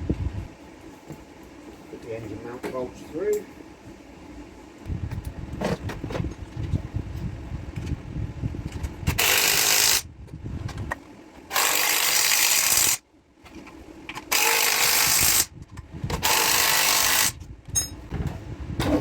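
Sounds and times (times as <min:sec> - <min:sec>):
power tool driving bolts: 0:09.1 - 0:10.0, 0:11.5 - 0:13.0, 0:14.1 - 0:15.5, 0:16.1 - 0:17.4.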